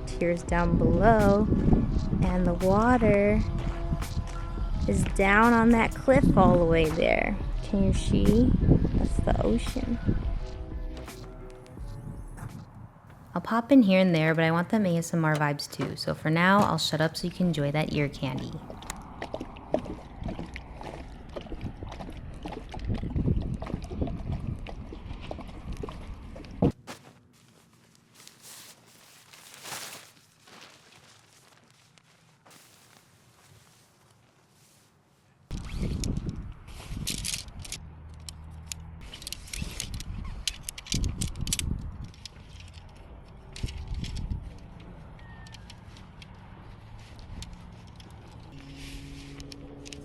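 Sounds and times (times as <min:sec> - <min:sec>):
low hum: 0:00.0 - 0:13.4, 0:41.2 - 0:50.0
camping gear clicks and taps: 0:37.0 - 0:48.6.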